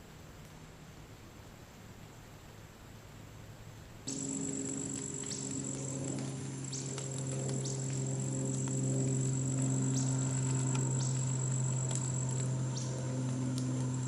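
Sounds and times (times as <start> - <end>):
steady low hum: 0.0 - 14.0
insects trilling: 4.1 - 14.0.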